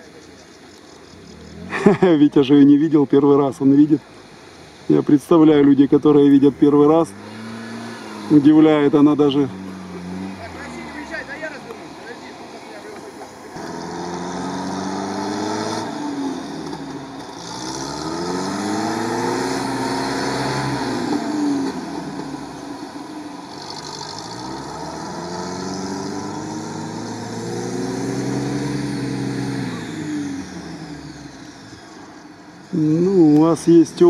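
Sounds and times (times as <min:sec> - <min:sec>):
off-road engines revving: 0:00.0 - 0:34.0.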